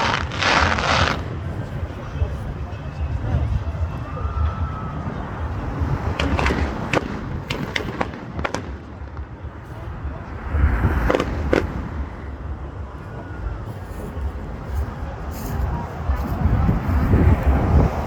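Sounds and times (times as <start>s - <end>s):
fireworks bangs and cracks: 0.0s - 3.5s, 4.4s - 12.6s.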